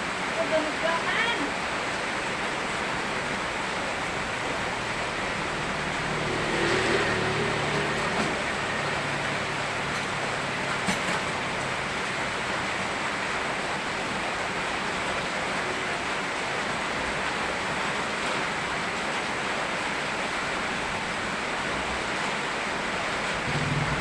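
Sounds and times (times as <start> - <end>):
rain falling: 0.0 - 24.0
river flowing: 0.0 - 24.0
low steady hum: 23.5 - 24.0.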